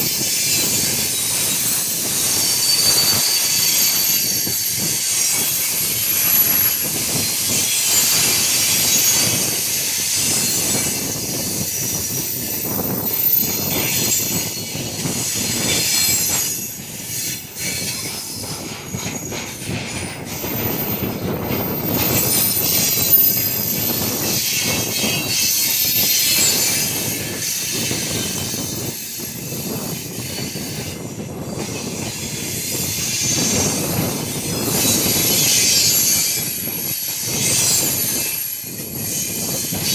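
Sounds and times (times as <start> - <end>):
high wheel squeal: 0.0 - 39.9
train wheels clattering over rail joints: 0.0 - 39.9.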